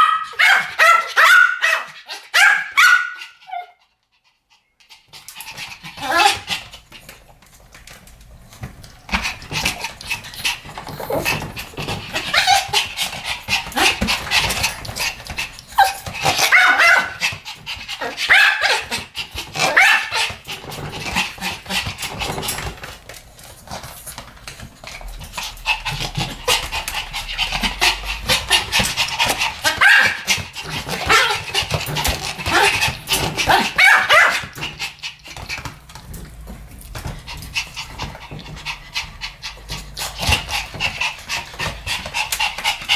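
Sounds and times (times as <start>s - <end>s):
small dogs yapping: 0.0s - 3.8s, 5.2s - 7.1s, 9.1s - 35.8s.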